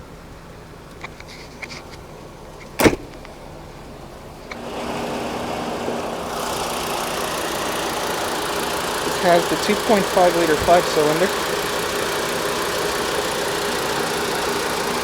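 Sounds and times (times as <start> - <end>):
car engine idling: 0.0 - 15.0
loud slam: 2.8 - 3.2.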